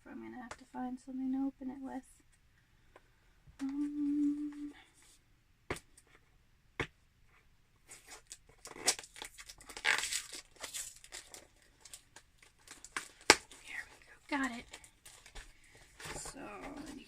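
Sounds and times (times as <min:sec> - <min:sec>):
sharp taps on cardboard: 0:06.8 - 0:07.0
cardboard scraping and tearing: 0:07.9 - 0:11.5.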